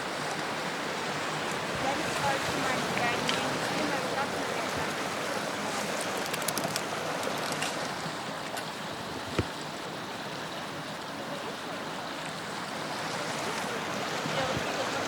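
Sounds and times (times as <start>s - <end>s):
water rushing at shore: 0.0s - 15.0s
faint clicks: 6.0s - 7.8s.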